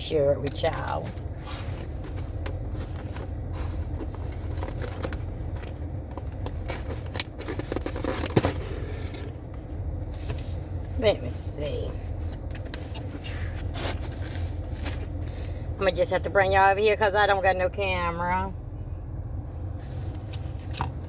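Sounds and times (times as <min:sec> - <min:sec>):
steady low rumble: 0:00.0 - 0:21.0
clicks and rustles of handling: 0:00.4 - 0:10.6.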